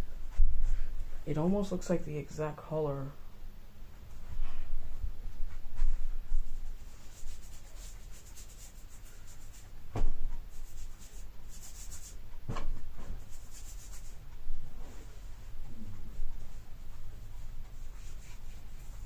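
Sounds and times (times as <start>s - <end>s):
paintbrush scratchy strokes: 4.1s - 9.7s, 10.5s - 12.2s, 13.2s - 19.0s.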